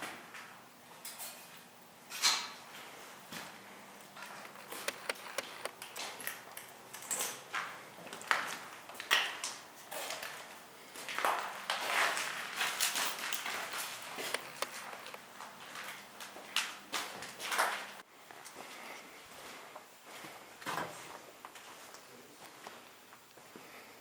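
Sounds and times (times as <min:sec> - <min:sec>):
footsteps crunching: 0:02.7 - 0:09.0, 0:09.8 - 0:22.8
sharp clicks and knocks: 0:04.1 - 0:06.3, 0:14.2 - 0:15.2.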